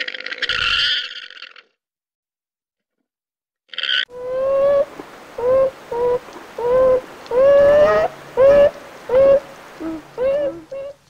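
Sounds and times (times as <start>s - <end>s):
animal humming calls: 4.1s - 11.0s.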